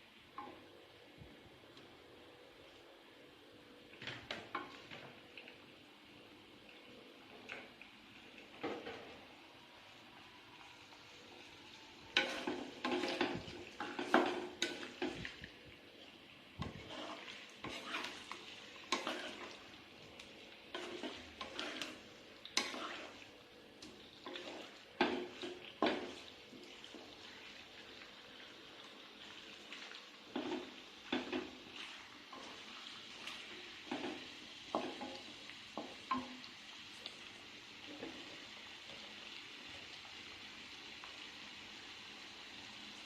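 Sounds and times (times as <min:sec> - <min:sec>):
food sizzling in a frying pan: 0:00.0 - 0:43.0
spatula scraping a pan: 0:12.1 - 0:15.3, 0:16.6 - 0:19.6, 0:20.7 - 0:23.3, 0:24.2 - 0:26.3, 0:30.3 - 0:35.2.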